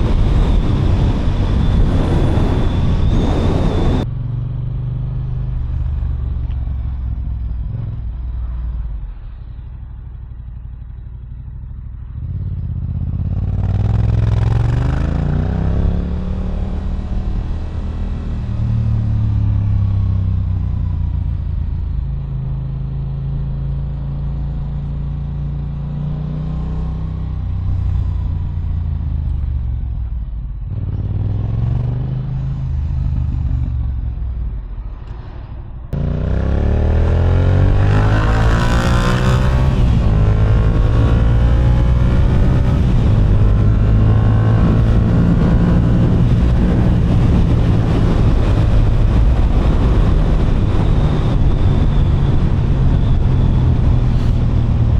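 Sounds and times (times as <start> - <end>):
wind noise: 0.0 - 9.2, 12.6 - 54.9
motorcycle engine revving: 12.0 - 21.9, 22.9 - 54.9.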